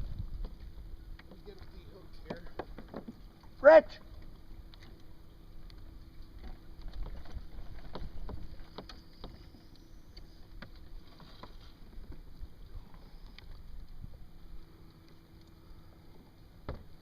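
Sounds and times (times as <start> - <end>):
steady low rumble: 0.0 - 2.2.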